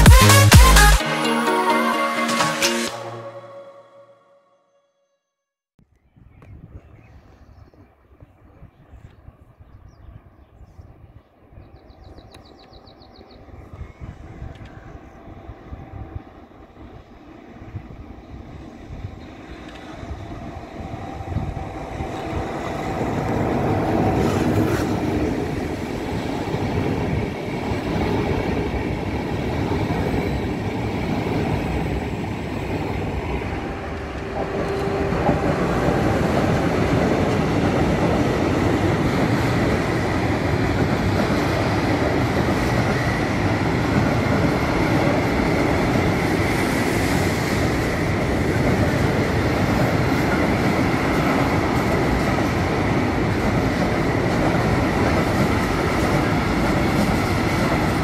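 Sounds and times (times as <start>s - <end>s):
passenger train passing: 0.0s - 4.3s, 8.8s - 58.0s
freight train rolling past: 11.9s - 58.0s.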